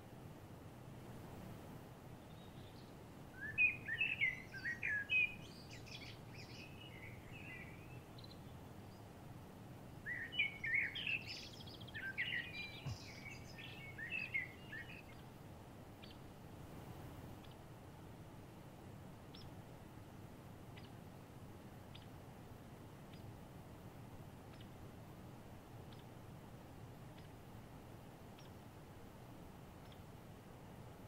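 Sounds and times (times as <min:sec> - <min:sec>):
faint hiss: 0:00.0 - 0:31.0
songbird chirping: 0:01.3 - 0:20.0, 0:20.6 - 0:31.0.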